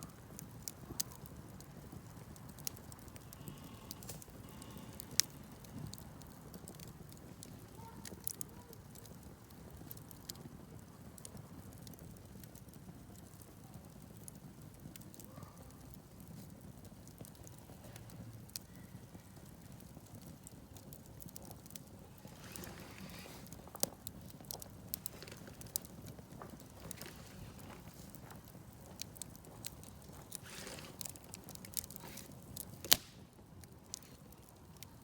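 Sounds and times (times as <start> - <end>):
campfire crackling: 0.0 - 35.0
hissing flare: 21.6 - 28.2, 29.0 - 33.3.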